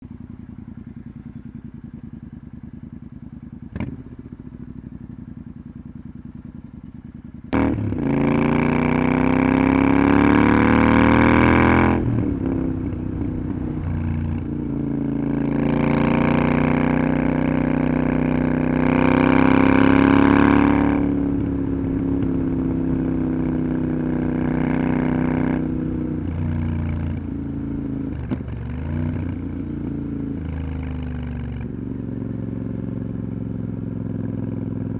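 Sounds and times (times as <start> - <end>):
motorcycle engine: 0.0 - 34.9.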